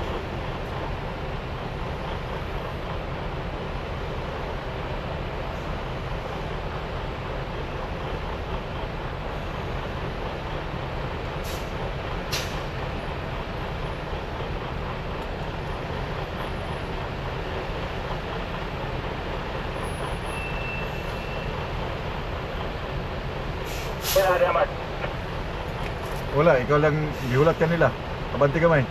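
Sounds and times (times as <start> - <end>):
truck engine and road rumble: 0.0 - 28.9.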